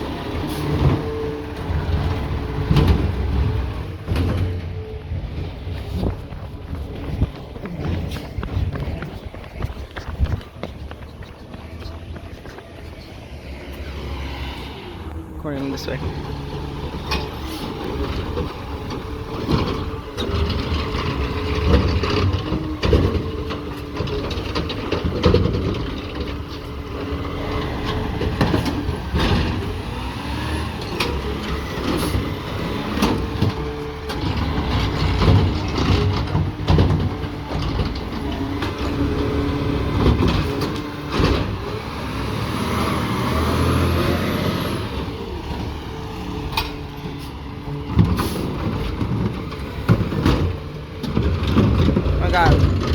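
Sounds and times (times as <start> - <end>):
garbage truck engine running: 0.0 - 14.1, 15.0 - 52.9
metal clanks and knocks: 1.8 - 12.8, 32.8 - 41.8, 46.5 - 52.9.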